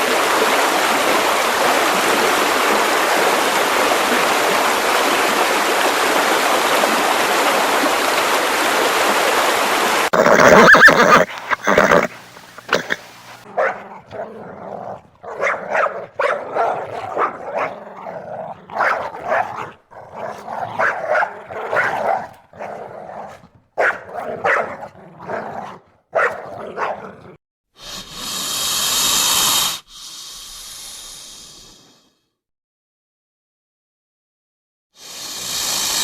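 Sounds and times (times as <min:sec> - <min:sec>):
dog barking: 0:13.4 - 0:27.4
loud hissing noise: 0:27.8 - 0:31.8, 0:35.0 - 0:36.0.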